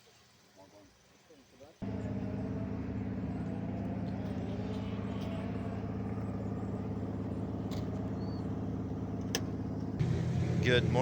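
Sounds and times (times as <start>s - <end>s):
car engine idling: 1.8s - 11.0s.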